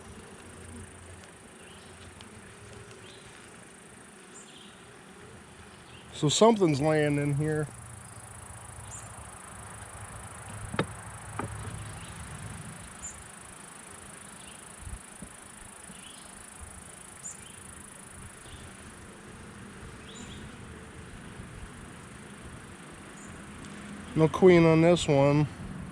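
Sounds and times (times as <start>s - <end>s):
faint ticks: 0.0s - 5.4s, 23.1s - 24.1s
honeybees buzzing: 0.0s - 25.9s
sharp knocks: 10.7s - 11.7s.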